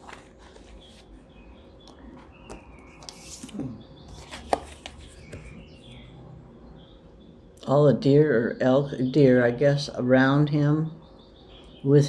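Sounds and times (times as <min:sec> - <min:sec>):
birds chirping: 0:00.2 - 0:12.0.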